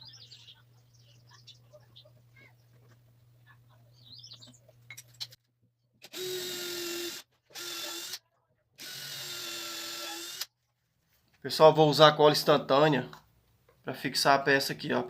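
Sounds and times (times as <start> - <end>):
electric drill boring wood: 6.1 - 8.2, 8.8 - 10.5.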